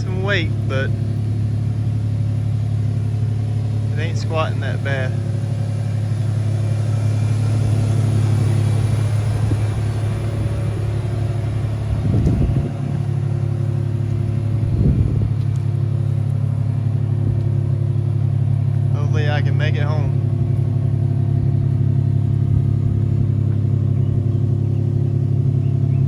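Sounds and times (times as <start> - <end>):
truck engine and road drone: 0.0 - 26.0
brief low rumbles: 7.4 - 19.0.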